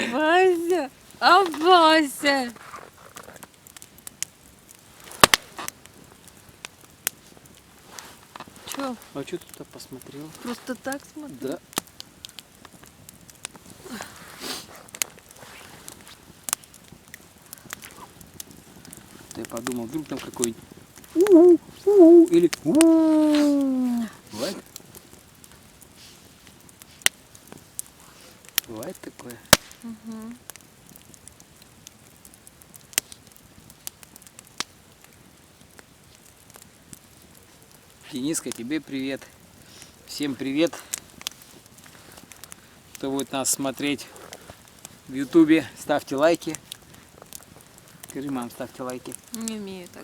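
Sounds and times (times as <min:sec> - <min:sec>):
campfire crackling: 0:00.0 - 0:50.0.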